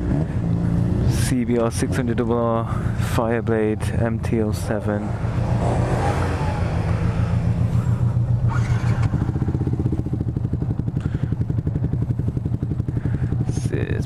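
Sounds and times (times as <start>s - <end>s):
motorcycle engine idling: 0.0s - 14.0s
passing vehicle rushing noise: 5.0s - 9.1s.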